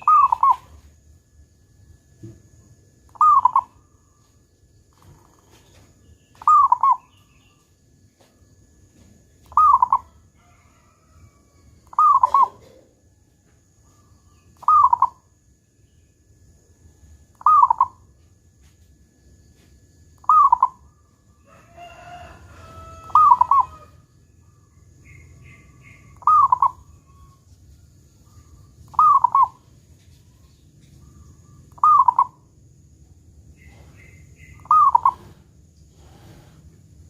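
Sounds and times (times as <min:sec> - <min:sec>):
bird's longer call: 0:00.0 - 0:00.8, 0:03.1 - 0:03.8, 0:21.8 - 0:24.0, 0:25.1 - 0:27.4, 0:31.1 - 0:32.4, 0:33.6 - 0:35.4
dove cooing: 0:00.0 - 0:00.8, 0:03.1 - 0:03.8, 0:04.9 - 0:07.2, 0:09.4 - 0:10.2, 0:11.8 - 0:13.0, 0:14.0 - 0:15.2, 0:17.4 - 0:18.0, 0:20.2 - 0:20.9, 0:21.9 - 0:24.0, 0:25.1 - 0:27.3, 0:28.3 - 0:29.7, 0:31.0 - 0:32.4, 0:33.6 - 0:36.6
faint high bird chirps: 0:00.0 - 0:00.9, 0:01.7 - 0:18.8, 0:19.5 - 0:32.5, 0:33.4 - 0:35.4.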